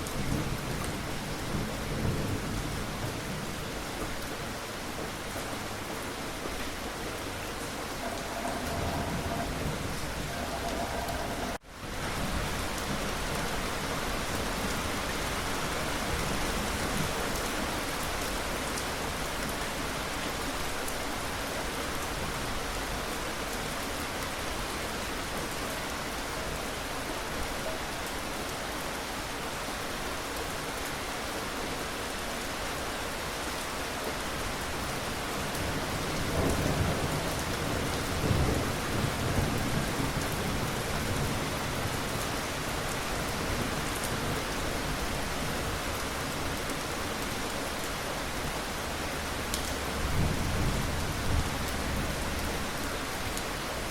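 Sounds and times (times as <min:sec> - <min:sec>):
rain falling: 0:00.0 - 0:53.9.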